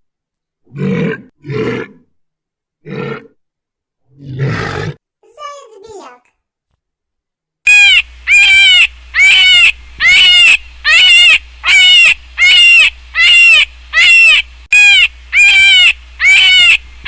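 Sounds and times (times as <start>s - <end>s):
high animal calls: 7.7s - 16.8s.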